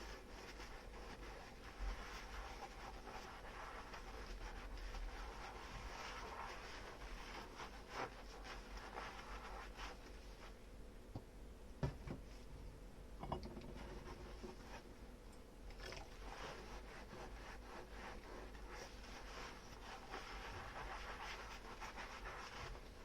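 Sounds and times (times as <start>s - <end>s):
sponge scrubbing dishes: 0.0s - 10.6s, 13.5s - 14.9s, 15.7s - 23.0s
dishware knocking: 13.2s - 13.7s.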